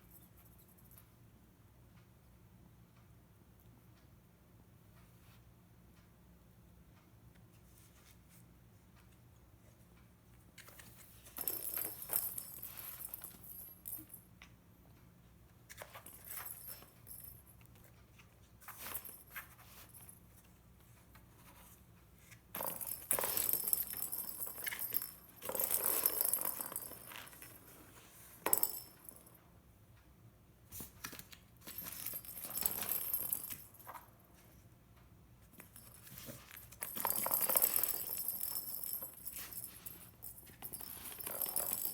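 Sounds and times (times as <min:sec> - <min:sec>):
cat toy rattling and rustling: 0:10.6 - 0:14.2, 0:15.7 - 0:29.2, 0:30.7 - 0:34.6, 0:35.5 - 0:41.9.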